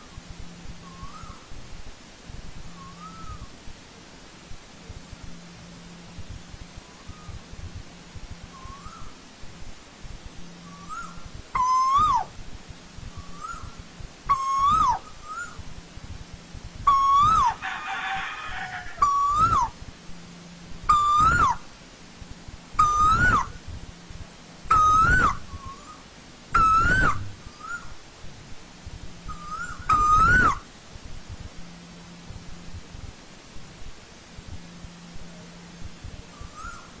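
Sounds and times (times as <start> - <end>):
koel whistled call: 10.6 - 12.3, 14.3 - 15.6, 16.9 - 19.7, 20.9 - 21.6, 22.8 - 23.6, 24.7 - 26.0, 26.6 - 27.9, 29.3 - 30.6, 36.3 - 36.9.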